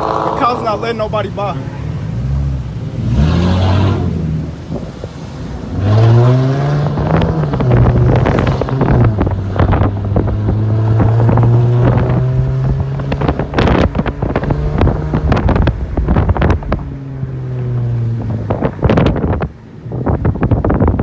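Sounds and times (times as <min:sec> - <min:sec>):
wind buffeting microphone: 0:04.1 - 0:21.0
car engine running: 0:06.9 - 0:20.9.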